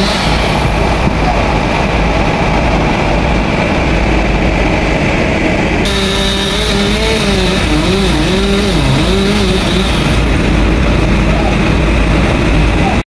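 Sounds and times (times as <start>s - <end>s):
chainsaw engine running: 0.0s - 0.6s, 5.8s - 10.8s.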